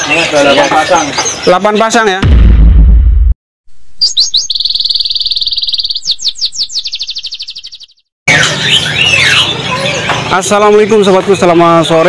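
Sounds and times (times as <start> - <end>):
songbird singing: 3.9 - 10.2.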